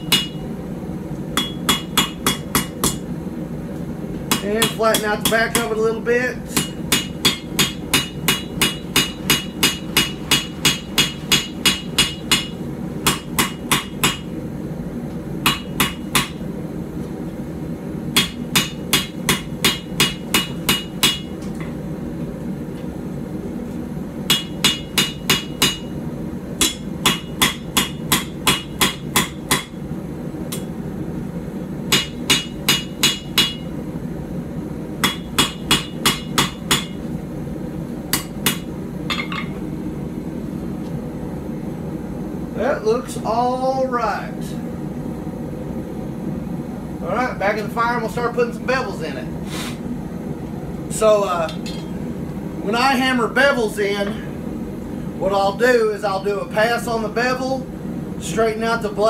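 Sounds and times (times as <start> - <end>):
hammer striking blade on anvil: 0.0 - 0.4, 1.4 - 3.0, 4.3 - 5.7, 6.6 - 14.3, 15.4 - 16.4, 18.2 - 21.3, 24.3 - 25.9, 26.6 - 29.8, 31.9 - 33.6, 35.0 - 37.0, 38.1 - 39.6.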